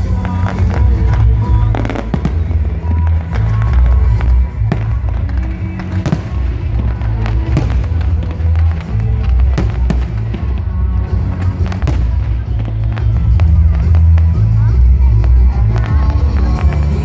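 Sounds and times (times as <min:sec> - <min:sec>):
fireworks bangs and crackle: 0:00.0 - 0:17.0
loud bass-heavy music: 0:00.0 - 0:17.0.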